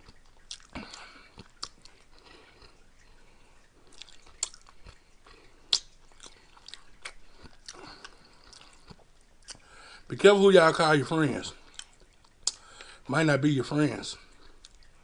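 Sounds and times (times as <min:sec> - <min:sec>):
sharp mouth clicks: 0:00.0 - 0:02.0, 0:05.7 - 0:09.7, 0:11.7 - 0:13.0
person chewing food: 0:00.0 - 0:10.1, 0:11.6 - 0:13.0, 0:14.3 - 0:15.0.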